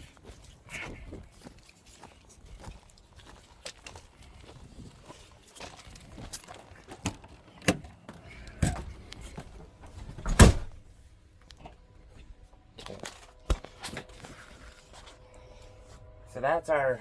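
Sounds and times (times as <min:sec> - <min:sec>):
knocks and clunks: 0:07.0 - 0:10.9
heavy thud: 0:10.0 - 0:10.9.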